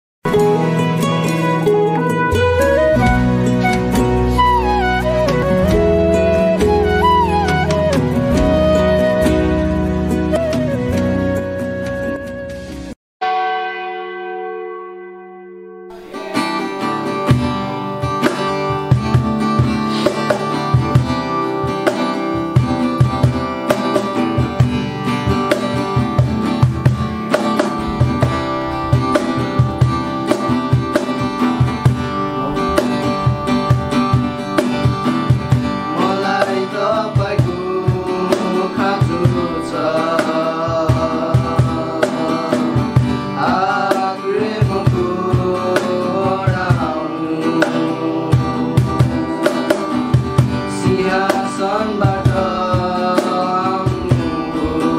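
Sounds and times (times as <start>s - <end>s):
strummed acoustic guitar: 0.3s - 15.0s, 15.9s - 54.9s
steady beat: 1.0s - 9.0s, 16.0s - 42.8s
bell-like tone: 13.2s - 17.2s
person singing: 32.1s - 34.6s, 35.7s - 49.7s, 50.6s - 54.9s.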